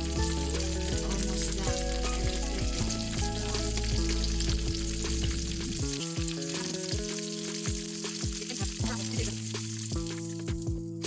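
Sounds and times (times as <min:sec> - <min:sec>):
food deep-frying in oil: 0:00.0 - 0:10.8
music with steady beat: 0:00.0 - 0:11.0.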